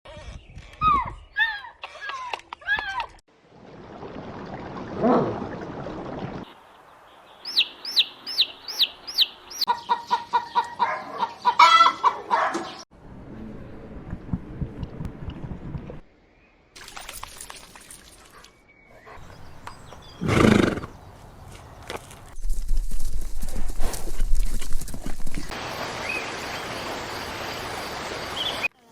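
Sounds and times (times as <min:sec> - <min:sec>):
chickens clucking: 0:08.8 - 0:12.8.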